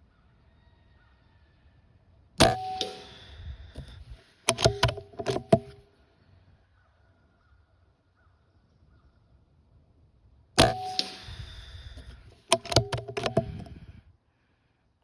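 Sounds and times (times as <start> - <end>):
airgun shot with metallic ring: 2.4 - 3.4, 10.6 - 11.7
sharp metallic clicks and clanks: 2.4 - 5.8, 10.6 - 13.8.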